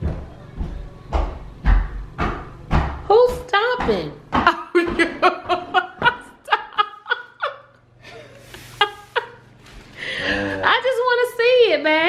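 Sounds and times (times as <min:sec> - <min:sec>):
person laughing: 0:04.4 - 0:09.4.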